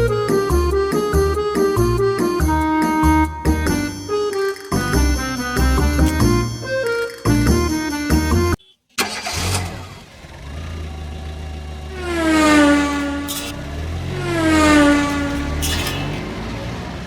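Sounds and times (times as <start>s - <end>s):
racing cars passing by: 9.7s - 17.0s.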